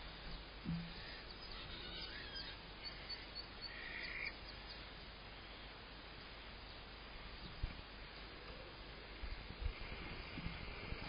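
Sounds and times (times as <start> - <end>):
outdoor background noise: 0.0 - 11.0
distant birds chirping: 0.1 - 9.4
soft low thump: 0.6 - 1.0.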